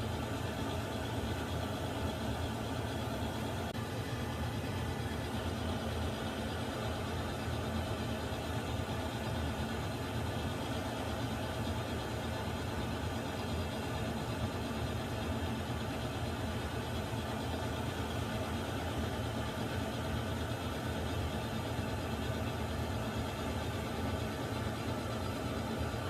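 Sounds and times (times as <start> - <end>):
water heater humming and hissing: 0.0 - 26.0.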